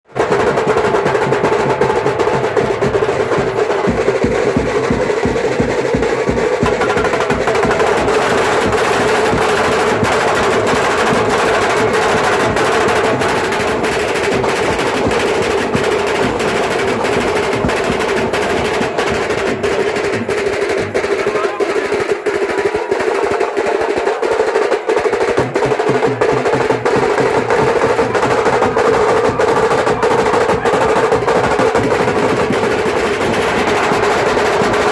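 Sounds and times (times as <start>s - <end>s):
band playing drum-driven music: 0.1s - 34.9s
snare drum rolls: 0.1s - 34.9s.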